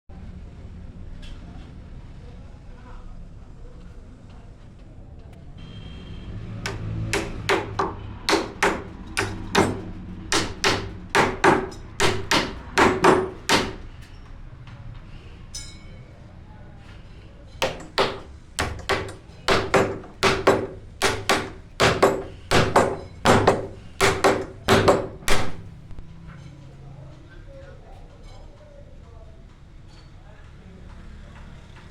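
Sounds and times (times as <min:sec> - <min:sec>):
hammer blows on wood: 0:06.7 - 0:14.0, 0:17.6 - 0:25.7.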